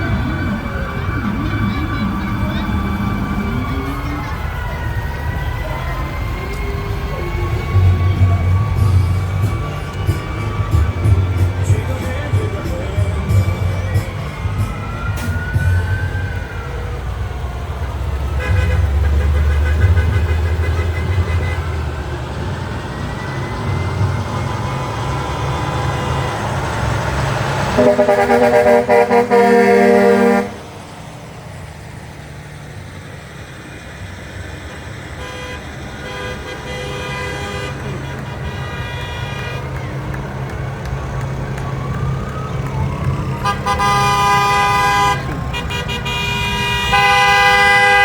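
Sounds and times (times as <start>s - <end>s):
siren wail: 0.0s - 31.8s, 37.7s - 48.0s
diesel engine rumble: 0.0s - 48.0s
air horn blast: 18.4s - 21.8s, 27.7s - 30.6s, 35.2s - 39.8s, 43.4s - 48.0s.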